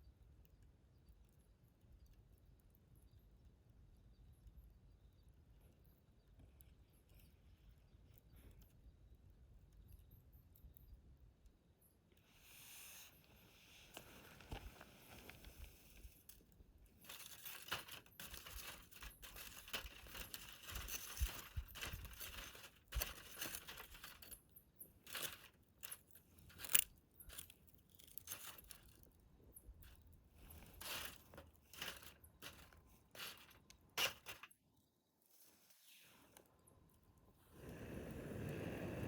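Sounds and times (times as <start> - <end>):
faint hiss: 12.2 - 16.5, 35.2 - 36.4, 37.4 - 39.0.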